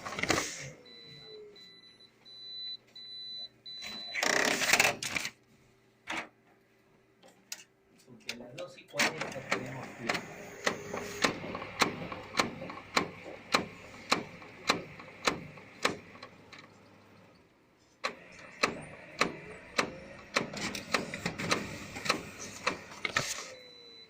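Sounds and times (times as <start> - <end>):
copier sharp clicking: 9.0 - 17.2, 18.0 - 23.5.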